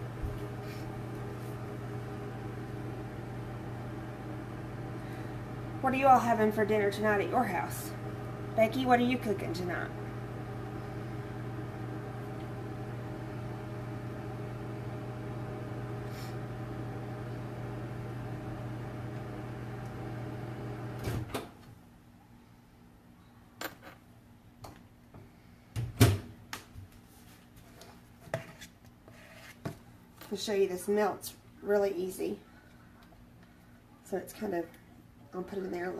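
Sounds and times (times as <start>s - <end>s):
microwave oven humming: 0.0s - 21.8s.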